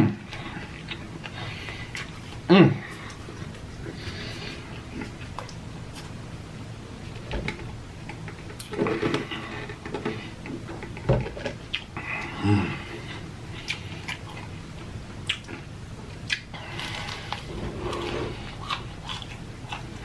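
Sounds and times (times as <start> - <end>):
chewing fried food: 11.7 - 20.0.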